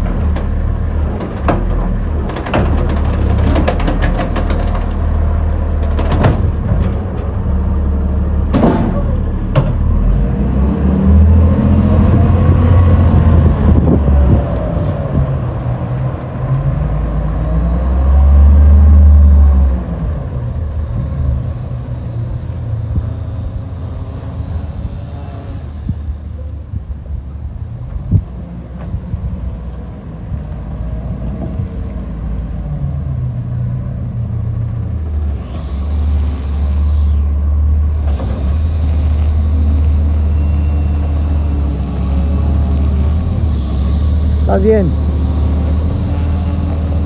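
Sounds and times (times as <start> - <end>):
diesel engine rumbling: 0.0 - 47.0
sharp knocks: 1.2 - 5.2, 5.8 - 7.2.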